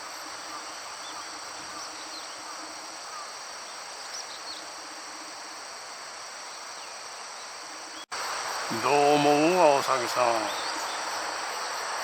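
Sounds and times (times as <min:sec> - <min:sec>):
insects trilling: 0:00.0 - 0:12.0
faint chirps: 0:08.7 - 0:11.8.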